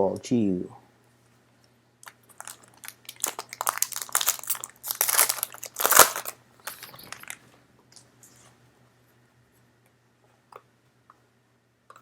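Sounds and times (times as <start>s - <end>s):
card pack packaging crinkling: 2.3s - 7.4s.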